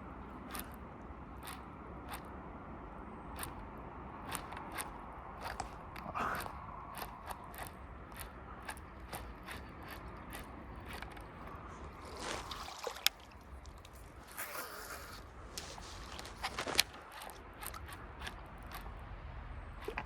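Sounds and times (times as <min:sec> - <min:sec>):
fishing reel clicking: 0:00.3 - 0:02.4, 0:03.3 - 0:11.6, 0:14.0 - 0:19.0.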